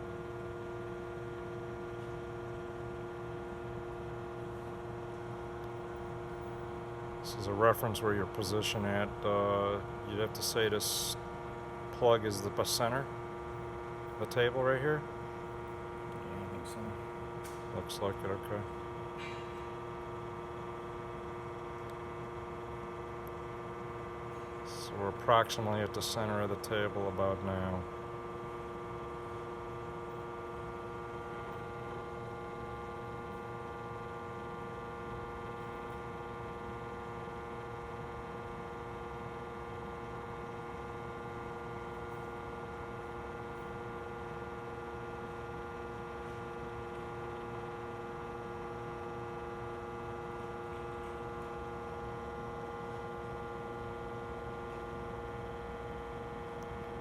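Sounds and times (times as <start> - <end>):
grinder machine humming: 14.1 - 19.7.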